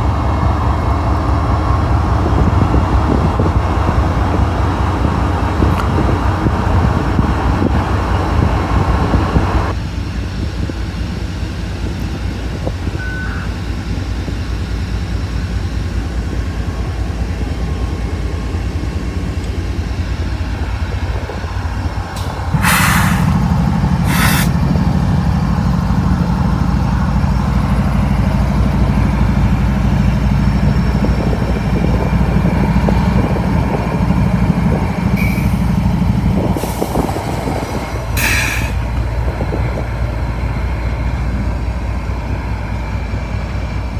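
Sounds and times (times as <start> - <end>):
diesel locomotive engine drone: 0.0 - 43.9
freight train rumbling past: 0.0 - 43.9
short sharp noises: 22.2 - 23.4, 24.0 - 24.6.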